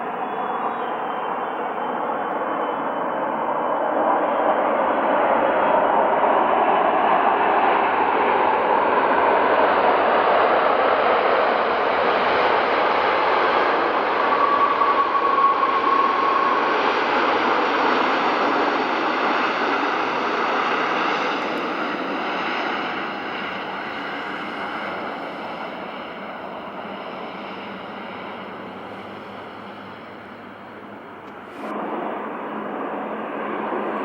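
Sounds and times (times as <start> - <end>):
jet engines passing: 0.0 - 34.0
brief high whine: 19.4 - 33.1.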